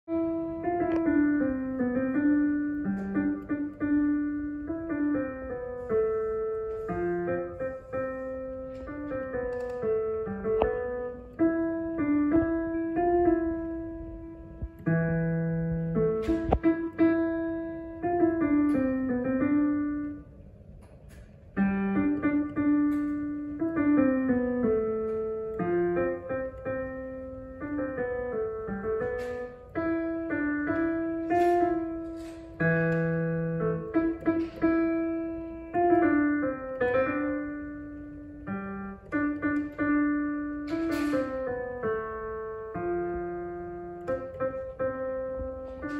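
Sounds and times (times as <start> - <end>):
slow piano melody: 0.0 - 45.9.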